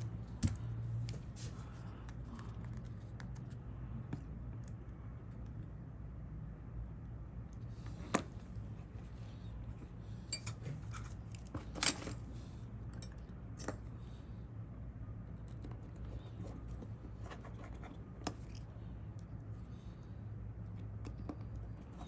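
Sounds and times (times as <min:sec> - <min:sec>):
small metal tools clinking: 0:10.3 - 0:12.2.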